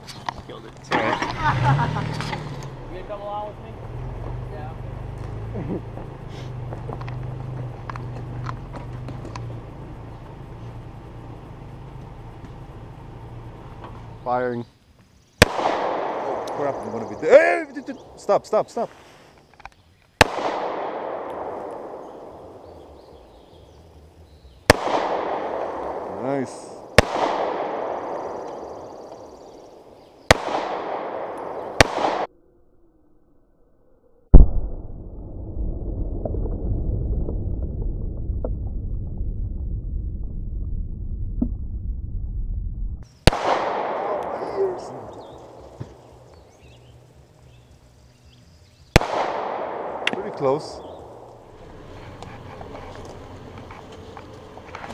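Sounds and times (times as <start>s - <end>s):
engine idling: 0.0s - 14.5s, 51.2s - 54.9s
footsteps crunching on dirt: 5.0s - 9.4s, 50.8s - 54.9s
pistol shots echoing: 15.4s - 17.1s, 20.2s - 22.8s, 24.7s - 26.1s, 26.8s - 32.3s, 43.2s - 46.1s, 48.9s - 51.3s.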